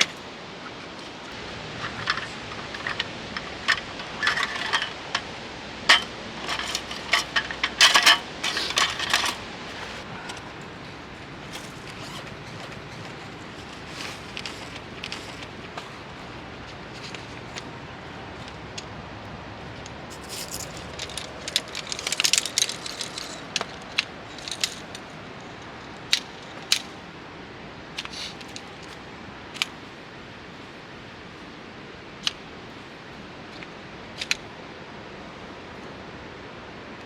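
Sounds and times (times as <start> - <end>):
metal camping gear clinking: 0.9 - 18.9, 19.6 - 27.1, 28.0 - 29.9.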